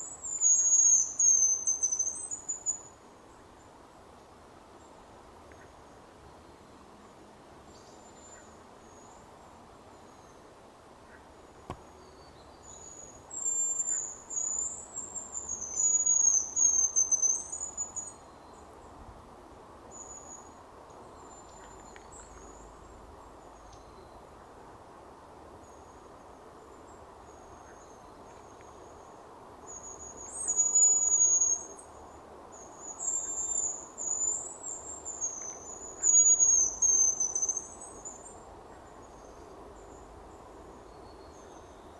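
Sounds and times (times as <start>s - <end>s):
steady background hiss: 0.0s - 41.9s
high-pitched bird whistling: 0.3s - 2.3s, 15.5s - 17.5s, 30.4s - 31.8s, 35.2s - 37.7s.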